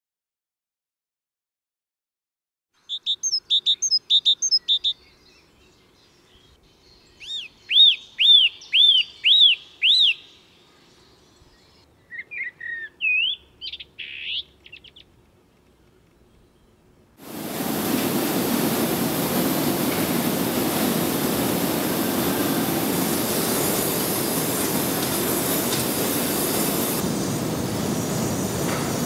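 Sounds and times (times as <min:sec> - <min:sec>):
songbird singing: 0:02.8 - 0:17.2.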